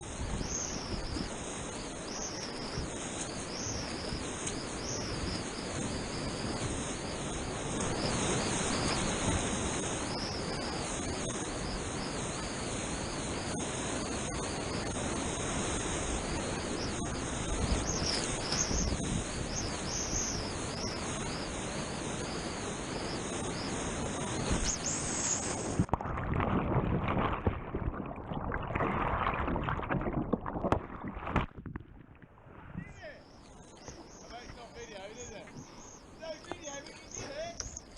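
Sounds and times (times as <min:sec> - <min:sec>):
wind on microphone: 0:00.0 - 0:33.0
water rushing around kayak: 0:00.0 - 0:37.9
water splashing and gurgling: 0:24.3 - 0:32.8.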